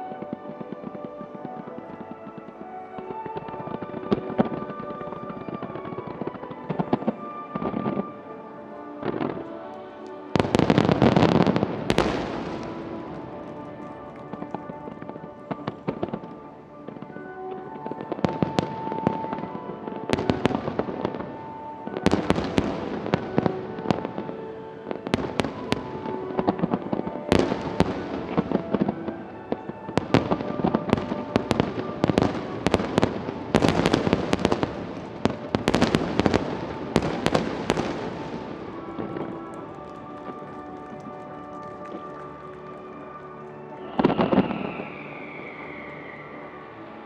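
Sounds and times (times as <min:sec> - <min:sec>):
music: 0:00.0 - 0:47.0
fireworks bangs: 0:08.9 - 0:42.7.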